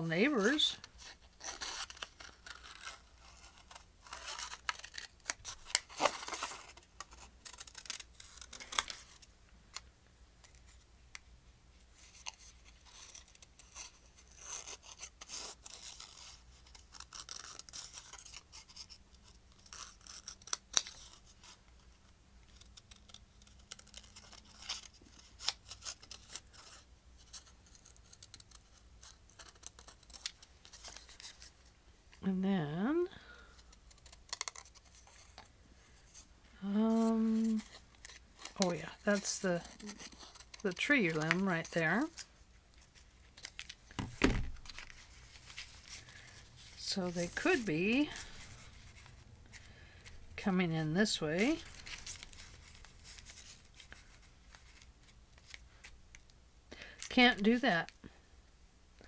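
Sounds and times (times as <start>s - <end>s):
paper rustling: 0.4s - 9.8s, 36.9s - 50.2s, 51.1s - 56.2s
scissors cutting paper: 0.5s - 9.1s, 12.1s - 21.6s, 22.5s - 31.4s, 33.7s - 35.5s, 36.9s - 42.3s.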